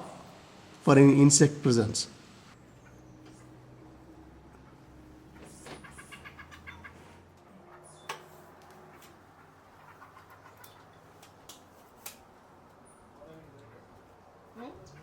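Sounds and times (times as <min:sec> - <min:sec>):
bird calling: 0:04.6 - 0:11.1.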